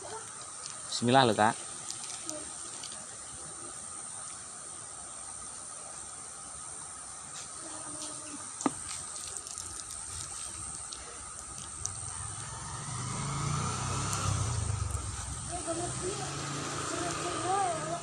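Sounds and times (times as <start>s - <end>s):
insect hiss: 0.0s - 18.0s
water running in ditch: 0.0s - 18.0s
low hum: 10.2s - 17.4s.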